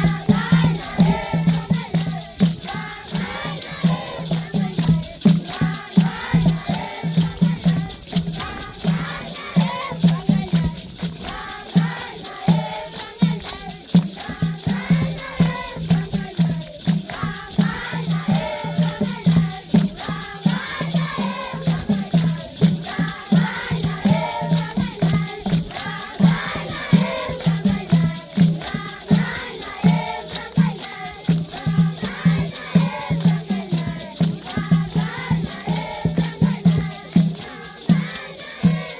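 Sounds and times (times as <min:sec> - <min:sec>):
children singing together: 0:00.0 - 0:38.9
shaken rattles hissing: 0:00.0 - 0:38.9
steady drum beat: 0:00.0 - 0:38.9.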